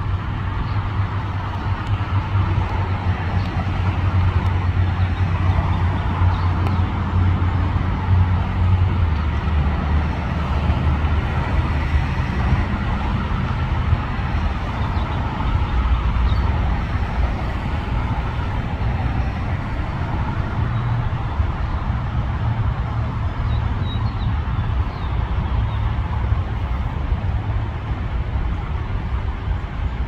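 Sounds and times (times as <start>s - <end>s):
diesel freight train rumbling: 0.0s - 30.0s.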